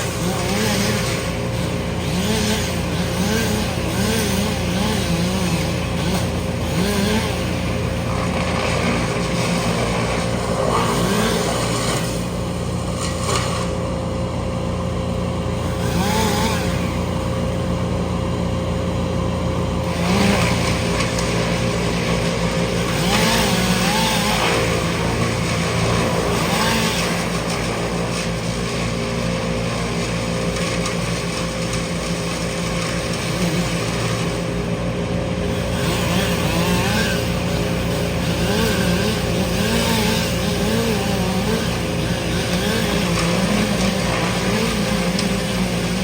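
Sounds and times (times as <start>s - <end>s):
large engine droning: 0.0s - 46.0s.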